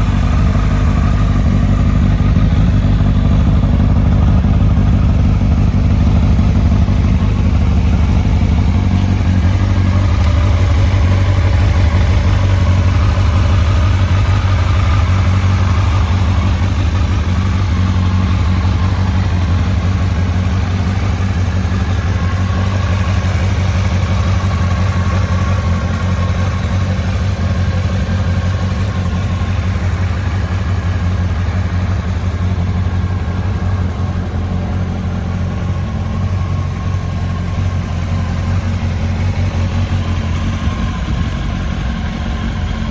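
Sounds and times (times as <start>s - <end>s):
motorcycle engine idling: 0.0s - 42.9s.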